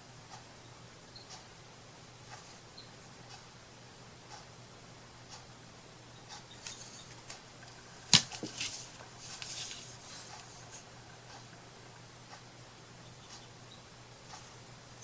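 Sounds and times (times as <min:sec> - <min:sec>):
faint steady hum: 0:00.0 - 0:15.0
craft handling taps and scratches: 0:06.6 - 0:10.8.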